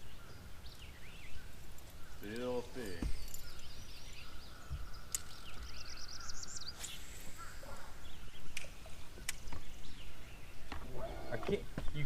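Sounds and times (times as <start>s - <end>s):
sharp clicks: 5.1s - 5.4s.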